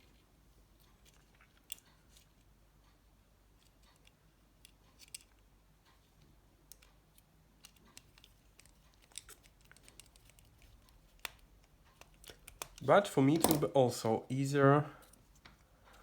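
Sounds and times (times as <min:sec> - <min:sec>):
phone parts clicking: 0:07.6 - 0:13.8.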